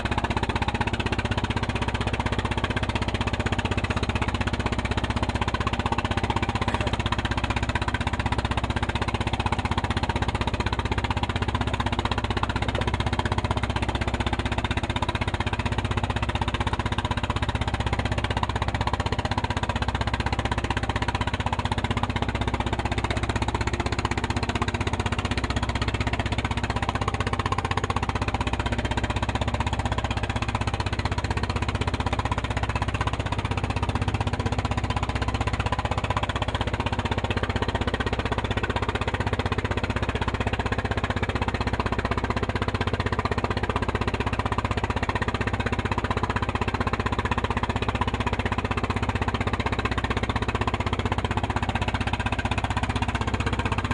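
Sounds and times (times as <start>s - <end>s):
boat engine knocking: 0.0s - 53.9s.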